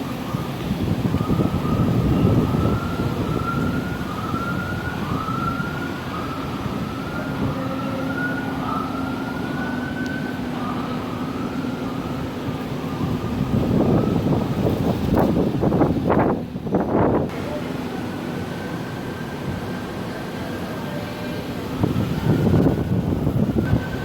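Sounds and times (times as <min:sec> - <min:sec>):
siren wailing: 0:00.0 - 0:16.4, 0:17.9 - 0:24.0
wind buffeting microphone: 0:00.0 - 0:20.6, 0:21.4 - 0:24.0.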